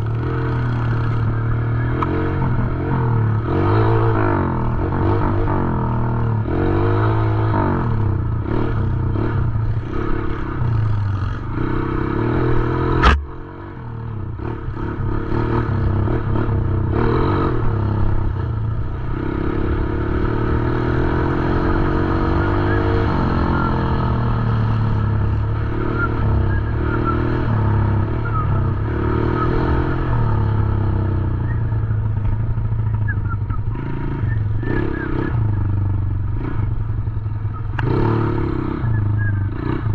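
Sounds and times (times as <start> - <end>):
dirt bike engine revving: 0.0 - 39.9
sharp knock: 13.0 - 13.4.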